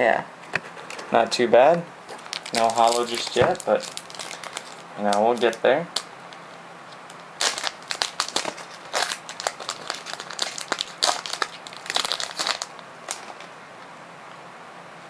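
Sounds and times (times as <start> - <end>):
wrapper and paper crinkling: 2.1 - 5.6, 7.4 - 13.5.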